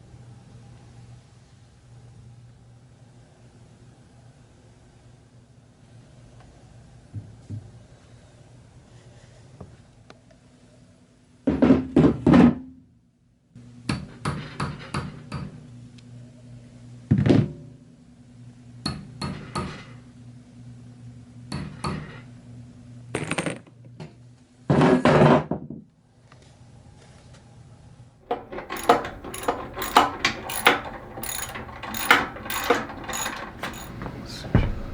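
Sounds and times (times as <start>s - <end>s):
hard objects knocking and clattering: 28.3s - 34.9s.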